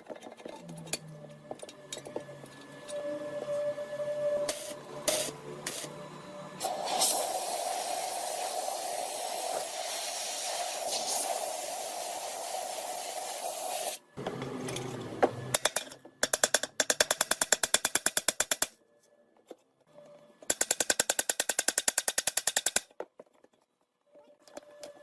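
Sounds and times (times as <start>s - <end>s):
power tool hiss: 4.5s - 6.0s, 6.6s - 14.0s.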